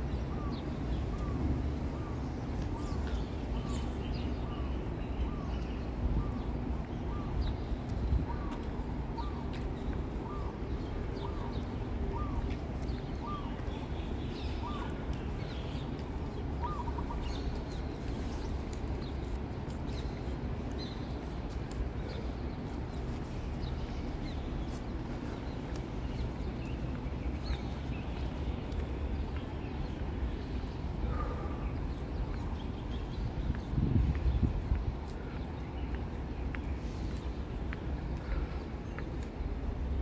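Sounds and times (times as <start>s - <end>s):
birds chirping: 0.1s - 40.0s.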